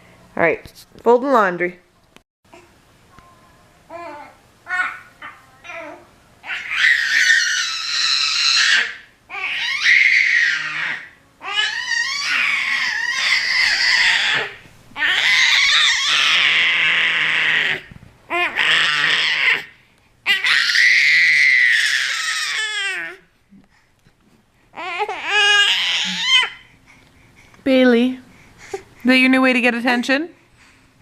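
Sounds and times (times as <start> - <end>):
baby screaming: 5.7 - 19.7, 20.3 - 23.2, 24.8 - 26.6.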